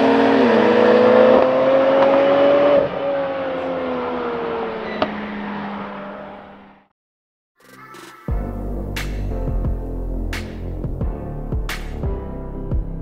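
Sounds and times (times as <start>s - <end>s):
car engine accelerating hard: 0.0s - 6.9s.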